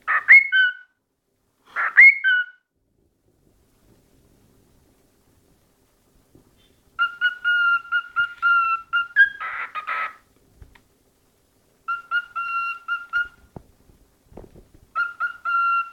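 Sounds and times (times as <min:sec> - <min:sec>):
cockatiel whistling: 0:07.0 - 0:10.2, 0:11.9 - 0:13.5, 0:15.0 - 0:15.9.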